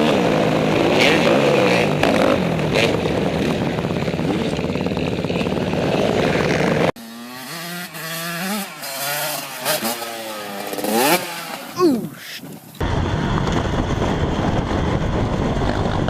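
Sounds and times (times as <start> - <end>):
dirt bike engine running: 0.0 - 11.8
motocross bikes revving: 0.0 - 12.4.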